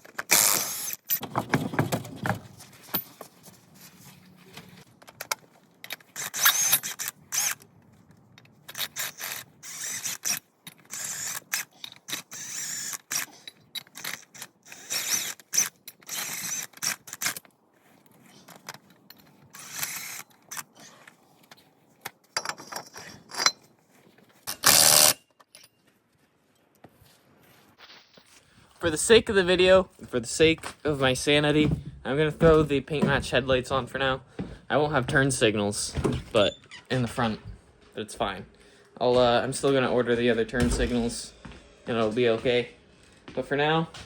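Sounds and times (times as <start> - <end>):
hand ratchet clicking: 5.2 - 7.6, 8.7 - 17.4.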